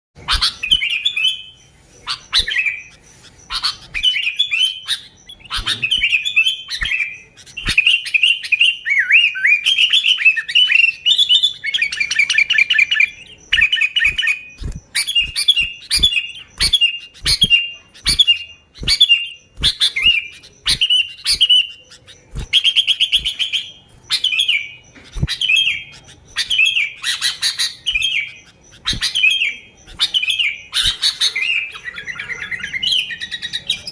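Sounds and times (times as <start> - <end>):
bird chirping: 0.2 - 33.9
bird rattling trills: 2.0 - 8.6, 11.7 - 31.4.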